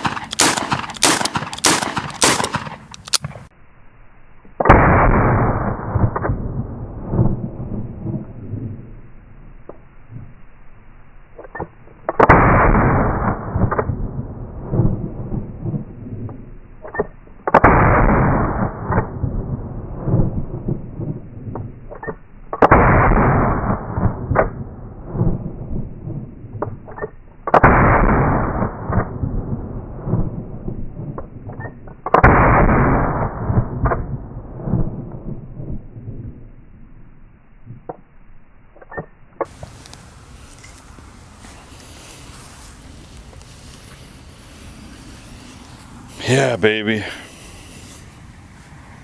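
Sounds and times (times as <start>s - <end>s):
faint sharp cracks: 0.0s - 3.5s, 39.4s - 49.0s
gunshot echo: 0.0s - 3.5s
revolver gunshots: 0.0s - 3.5s.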